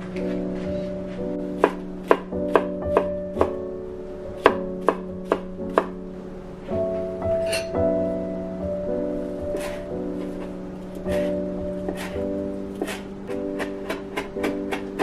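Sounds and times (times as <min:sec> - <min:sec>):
soft background music: 0:00.0 - 0:15.0
knife chopping on cutting board: 0:12.8 - 0:15.0.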